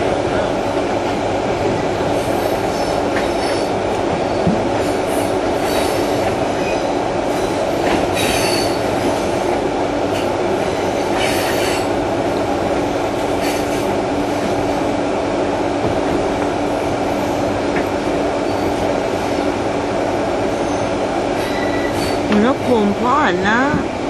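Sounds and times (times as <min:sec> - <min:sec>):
train rumbling on rails: 0:00.0 - 0:24.0
high wheel squeals: 0:08.2 - 0:08.9, 0:20.6 - 0:22.3.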